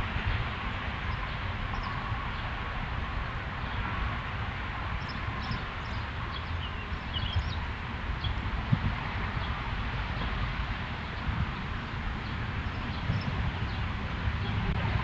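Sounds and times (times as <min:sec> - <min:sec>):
songbirds chirping: 0:04.9 - 0:08.4, 0:09.2 - 0:14.7.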